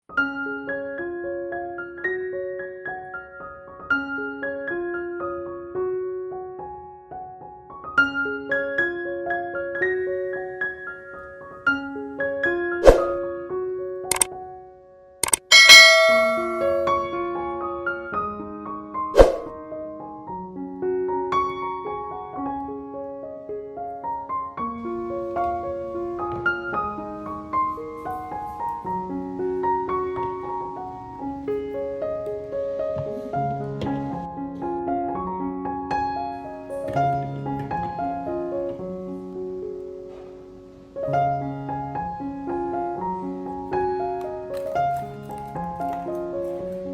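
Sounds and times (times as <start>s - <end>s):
gentle piano music: 0.0s - 46.9s
sharp clink: 15.2s - 17.1s.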